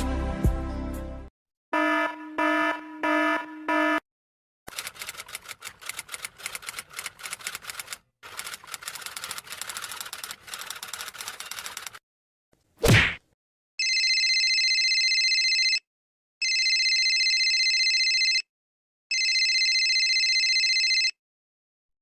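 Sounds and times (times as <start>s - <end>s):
typewriter keys clattering: 4.7s - 12.0s.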